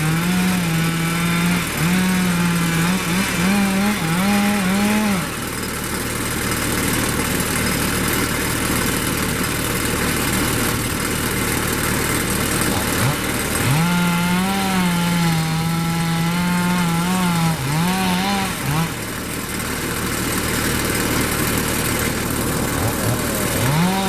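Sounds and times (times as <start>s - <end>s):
chainsaw running and cutting: 0.0s - 24.0s.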